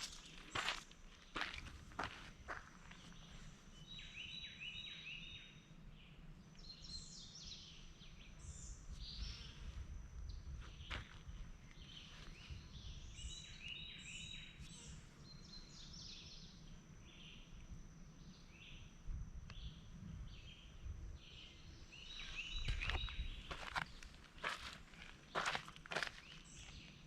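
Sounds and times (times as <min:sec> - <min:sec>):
footsteps crunching on ground litter: 0:00.0 - 0:03.3, 0:22.1 - 0:26.9
birds chirping: 0:00.0 - 0:05.4, 0:19.5 - 0:27.0
wind rumble on microphone: 0:08.1 - 0:15.1, 0:19.0 - 0:25.1.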